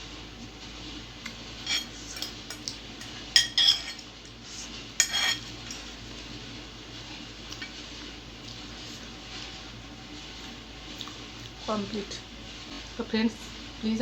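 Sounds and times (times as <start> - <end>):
cutlery clinking and scraping a dish: 1.6 - 4.1, 5.0 - 6.0.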